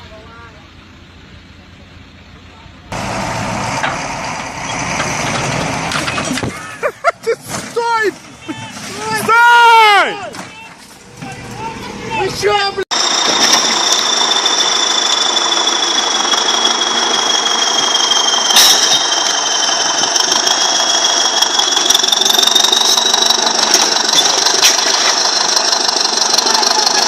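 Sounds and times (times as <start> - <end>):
heavy machine engine running: 0.0 - 6.7, 12.9 - 27.0
high whine: 11.1 - 27.0.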